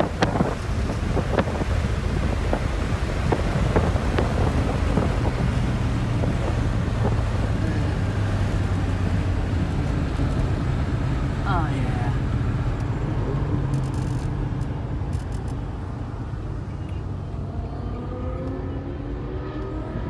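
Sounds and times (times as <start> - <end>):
wind rushing past microphone: 0.0 - 11.0
car engine cruising: 0.0 - 20.0.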